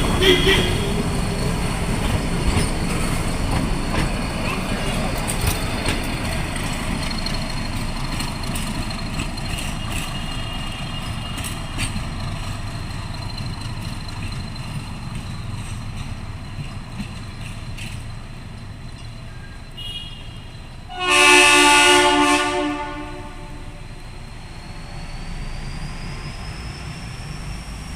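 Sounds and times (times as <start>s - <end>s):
train rumbling: 0.0s - 19.8s, 20.4s - 27.9s
loud train horn: 0.1s - 1.0s, 19.8s - 23.9s
train wheel clicks: 1.6s - 19.2s.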